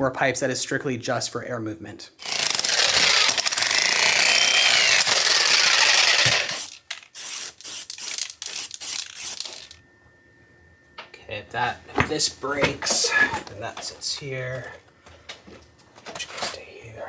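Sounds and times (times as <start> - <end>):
jackhammer breaking stone: 2.2 - 6.7.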